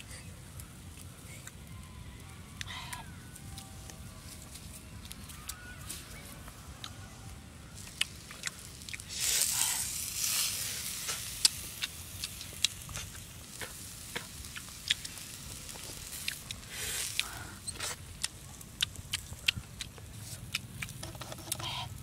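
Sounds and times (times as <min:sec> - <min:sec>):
food sizzling on hot stone: 0:07.7 - 0:21.9.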